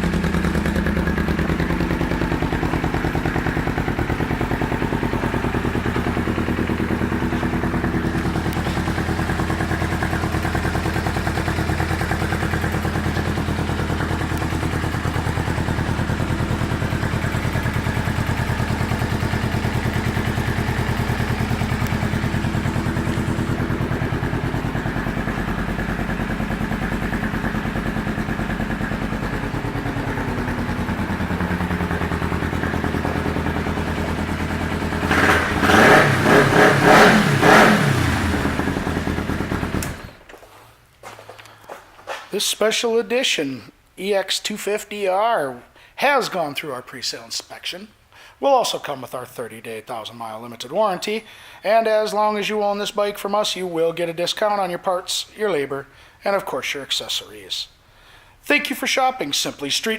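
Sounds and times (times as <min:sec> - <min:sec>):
motorcycle engine idling: 0:00.0 - 0:40.3.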